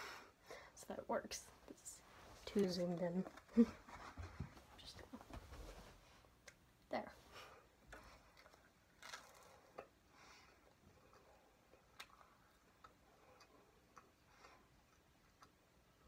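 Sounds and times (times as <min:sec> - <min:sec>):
soft rustles: 0:01.6 - 0:06.3
small chewing clicks: 0:07.9 - 0:16.0.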